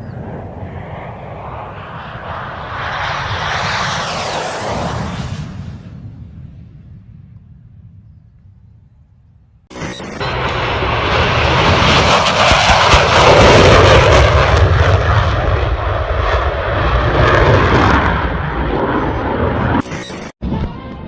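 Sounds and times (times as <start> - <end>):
low-flying airplane engine rushing: 0.0 - 21.0.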